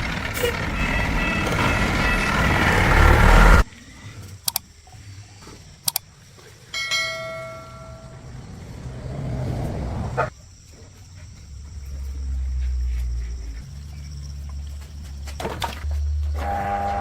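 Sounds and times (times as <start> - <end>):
low hum: 0.0 - 3.7
sharp metallic clicks: 5.8 - 6.0.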